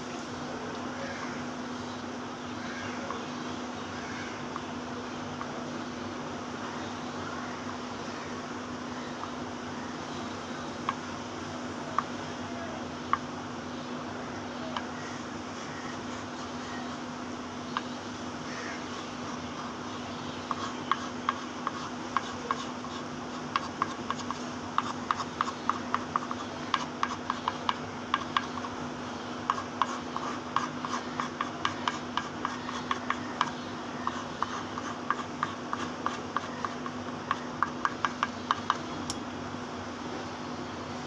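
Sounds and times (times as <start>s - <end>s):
steady low hum: 0.0s - 41.0s
drawing strokes on paper: 18.8s - 28.8s, 29.4s - 38.8s.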